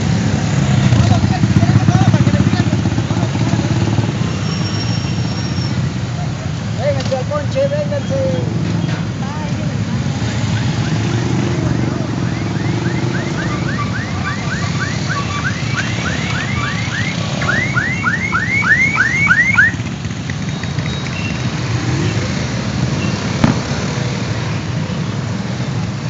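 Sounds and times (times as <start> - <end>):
vehicle engines passing: 0.0 - 26.0
electronic siren whooping: 11.7 - 19.8.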